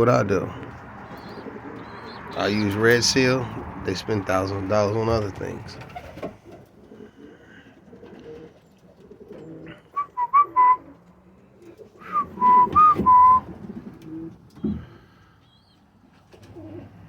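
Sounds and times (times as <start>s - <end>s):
pigeons cooing: 0.3s - 17.0s
whistled notes: 10.0s - 10.9s, 12.0s - 13.5s.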